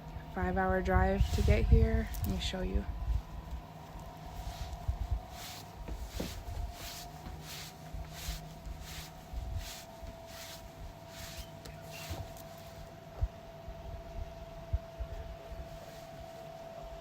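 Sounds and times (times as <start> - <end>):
faint steady hum: 0.0 - 17.0
footsteps: 3.1 - 12.9.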